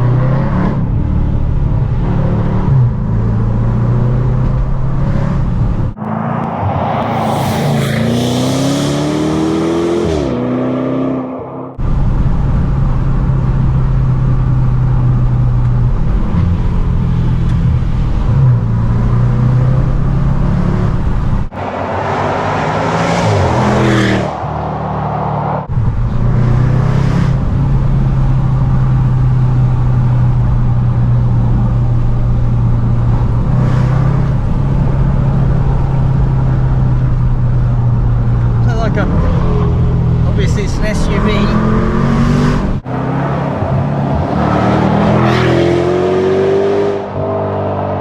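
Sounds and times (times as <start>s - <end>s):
car exhaust drone: 0.0s - 10.5s, 23.4s - 48.0s
engine surge with rush of noise: 5.9s - 9.9s.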